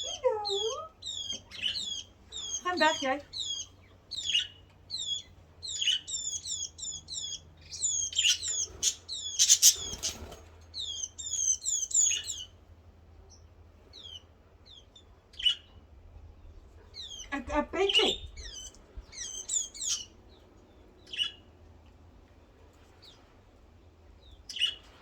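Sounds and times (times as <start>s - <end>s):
small birds chirping: 0.0s - 21.6s, 22.3s - 25.0s.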